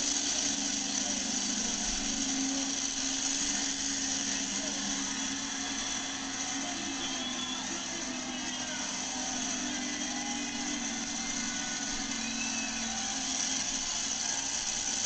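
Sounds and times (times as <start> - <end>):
big engine running: 0.0 - 15.0.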